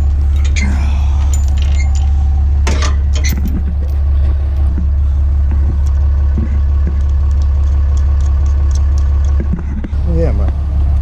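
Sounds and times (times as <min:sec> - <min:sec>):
light metallic clinks: 0:00.0 - 0:02.2
truck engine idling: 0:00.0 - 0:11.0.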